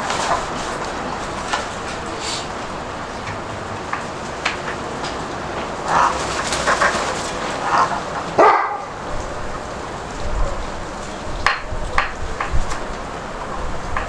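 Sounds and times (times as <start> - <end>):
wind buffeting microphone: 0.0 - 14.0
dog barking: 7.6 - 9.0.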